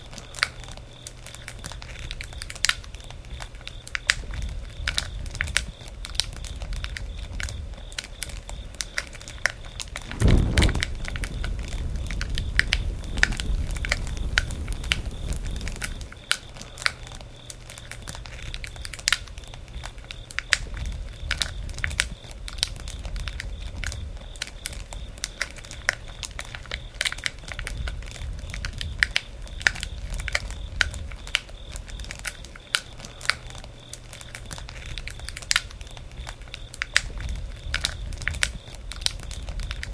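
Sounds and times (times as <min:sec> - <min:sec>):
bonfire crackling and popping: 0:10.0 - 0:16.2
low rumble: 0:10.1 - 0:16.2.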